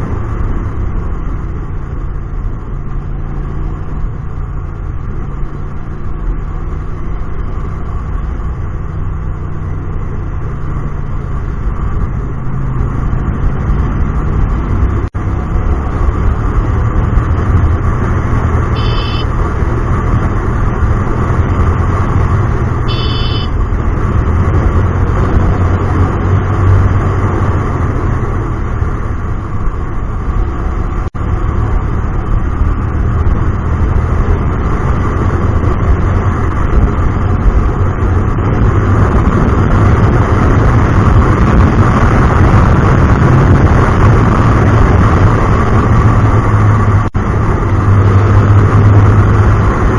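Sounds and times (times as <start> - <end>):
motorcycle engine revving: 0.0 - 49.9
road and traffic noise: 0.0 - 49.9
short high-pitched beeps: 18.7 - 19.3, 22.9 - 23.6.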